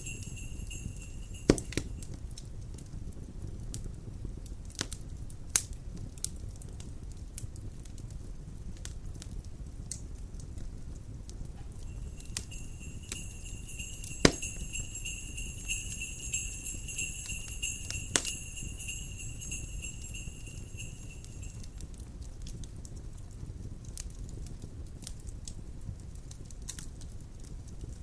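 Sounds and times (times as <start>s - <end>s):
fire popping: 0.0s - 2.1s, 11.4s - 23.0s
jingle bells jingling: 0.0s - 2.1s, 11.8s - 21.8s
wood fire crackling: 0.0s - 2.8s, 3.6s - 28.0s.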